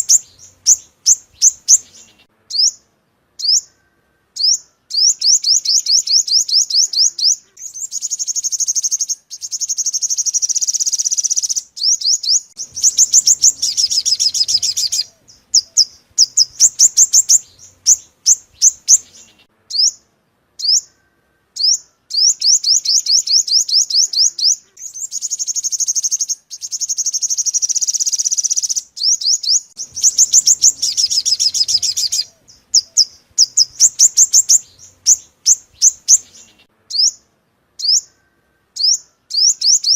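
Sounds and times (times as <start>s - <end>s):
bird trilling high notes: 12.6s - 20.0s, 29.8s - 39.9s.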